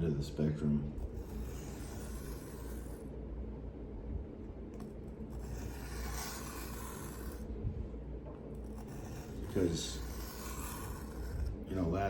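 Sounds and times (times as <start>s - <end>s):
steady low hum: 0.0s - 12.0s
knife scraping on sharpening stone: 5.3s - 7.4s, 8.6s - 11.5s.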